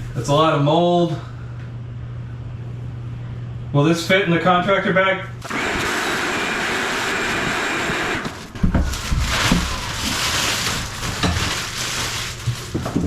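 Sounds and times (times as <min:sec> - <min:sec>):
motor noise: 0:05.4 - 0:09.0
plastic bag crinkling: 0:08.3 - 0:13.0.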